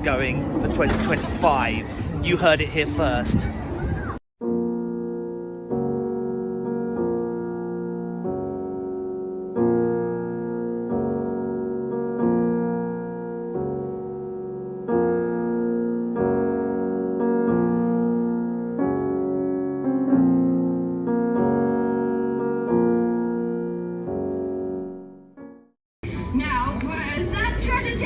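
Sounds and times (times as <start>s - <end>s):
piano playing slow chords: 4.4s - 25.7s.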